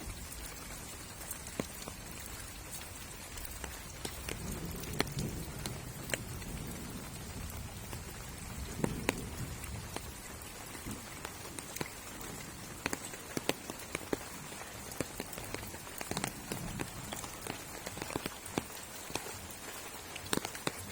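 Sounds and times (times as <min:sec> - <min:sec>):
water drops tapping: 0:10.8 - 0:19.3.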